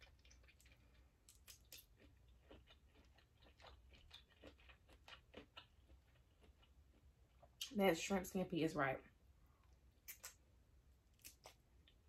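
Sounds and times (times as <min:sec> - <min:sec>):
wet chewing mouth clicks: 0:10.0 - 0:10.4.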